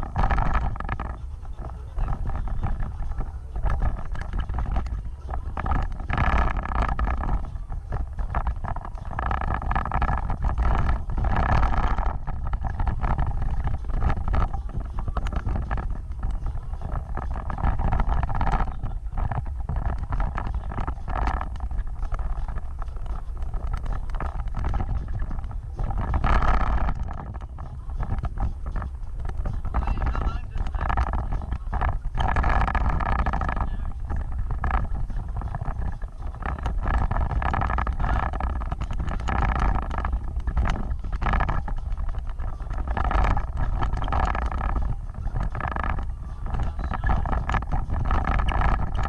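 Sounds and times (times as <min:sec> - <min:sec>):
off-road vehicle engine rumbling: 0:00.0 - 0:49.0.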